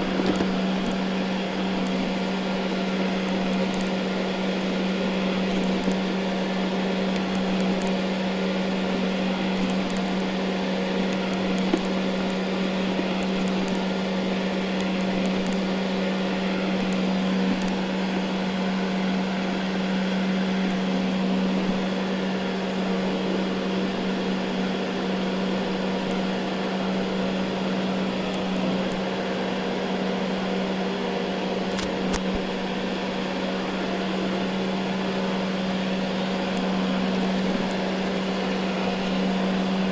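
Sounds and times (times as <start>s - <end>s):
robot vacuum running: 37.0s - 39.9s.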